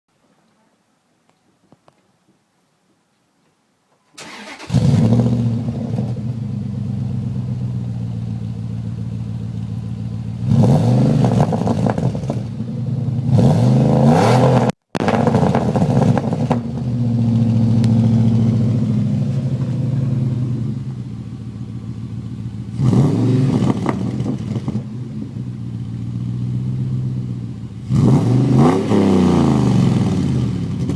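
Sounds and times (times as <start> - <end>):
engine starting and revving: 4.2 - 6.4, 22.7 - 24.9, 27.8 - 30.9.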